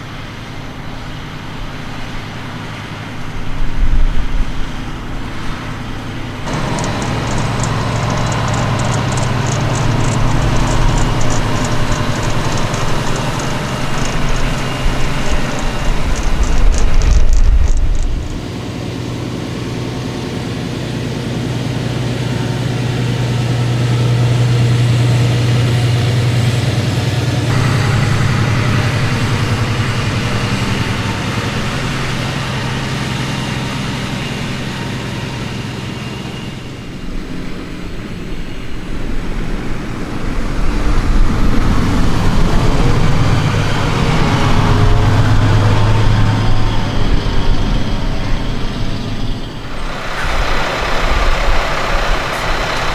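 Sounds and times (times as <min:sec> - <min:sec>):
tractor engine running: 0:00.0 - 0:52.9
broad rushing noise: 0:06.5 - 0:18.4, 0:49.6 - 0:52.9.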